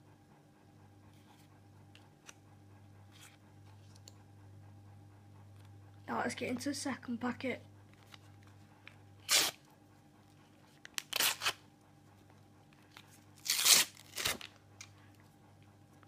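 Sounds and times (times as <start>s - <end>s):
foil wrapper tearing and crinkling: 9.2s - 9.6s, 10.9s - 11.6s, 13.4s - 14.6s.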